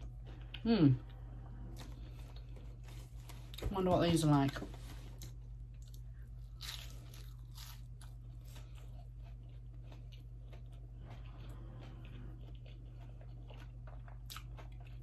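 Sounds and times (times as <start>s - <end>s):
person biting and chewing crisply: 5.2s - 15.0s.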